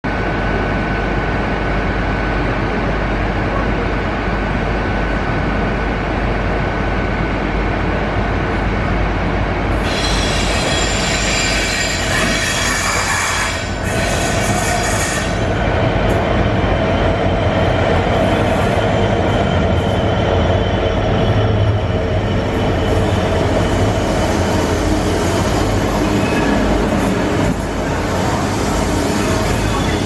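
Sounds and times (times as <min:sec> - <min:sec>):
train running noise: 0:00.1 - 0:30.0
high-pitched brake squeal: 0:09.8 - 0:15.5, 0:25.6 - 0:27.2, 0:27.9 - 0:30.0.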